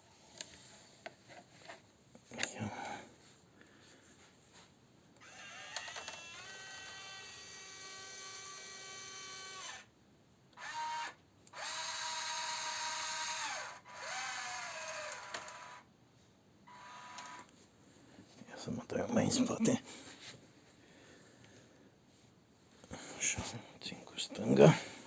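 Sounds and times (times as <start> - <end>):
electric gear motors whining: 5.2 - 9.9, 10.6 - 15.8.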